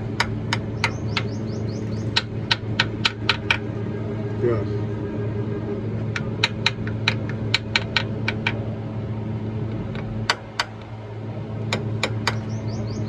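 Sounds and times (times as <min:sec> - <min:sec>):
sharp metallic clicks: 0:00.0 - 0:03.6, 0:06.1 - 0:08.6
steady low hum: 0:00.0 - 0:13.0.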